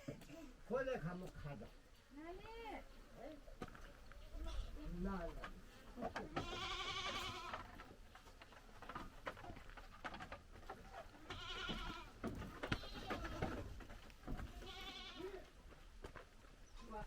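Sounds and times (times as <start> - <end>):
goat bleating: 6.4 - 7.8, 11.2 - 13.6, 14.4 - 15.5.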